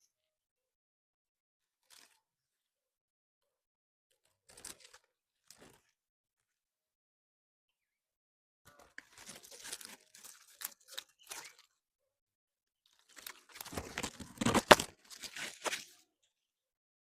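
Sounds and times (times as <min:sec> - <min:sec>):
crinkling crackling rustle: 0:01.8 - 0:02.2, 0:04.5 - 0:06.0, 0:08.9 - 0:11.8, 0:12.9 - 0:16.0.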